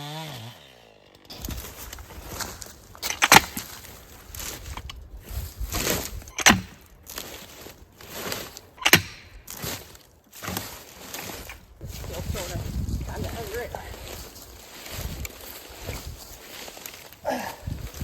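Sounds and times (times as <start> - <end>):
crunching and rustling brush: 1.2 - 18.0
knocks on logs: 6.4 - 6.8, 8.8 - 9.8.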